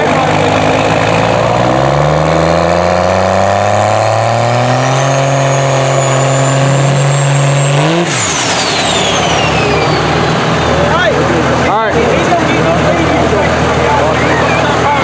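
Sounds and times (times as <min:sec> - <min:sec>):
diesel truck engine accelerating: 0:00.0 - 0:15.0
high turbo whistle: 0:04.6 - 0:11.2.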